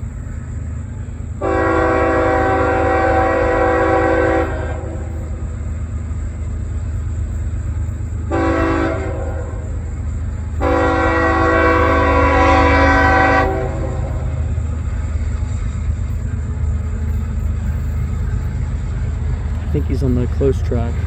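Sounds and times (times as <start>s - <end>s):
locomotive low rumble: 0.0s - 21.0s
locomotive air horn blasts: 1.4s - 5.4s, 8.3s - 9.9s, 10.6s - 14.7s.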